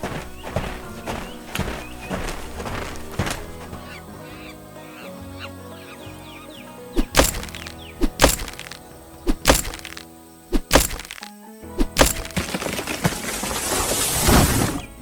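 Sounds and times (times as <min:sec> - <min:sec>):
background music: 0:00.0 - 0:15.0
sharp percussive hits: 0:07.0 - 0:12.4.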